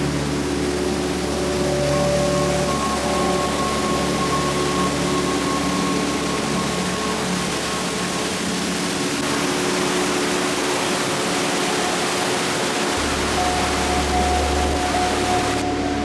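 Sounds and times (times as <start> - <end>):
waterfall roaring: 0.0 - 16.0
low hum: 13.0 - 16.0.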